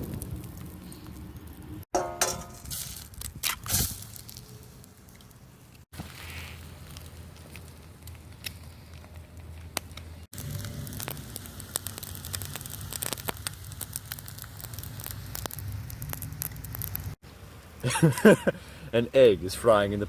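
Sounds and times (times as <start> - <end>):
campfire crackling and popping: 0.0 - 17.2.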